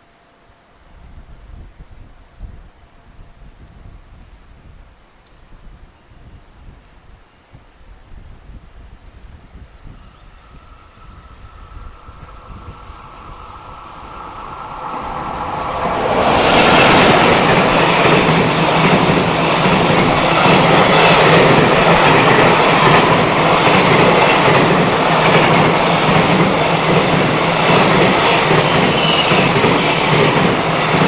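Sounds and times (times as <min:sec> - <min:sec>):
train wheels rumbling on rail: 0:10.0 - 0:31.0.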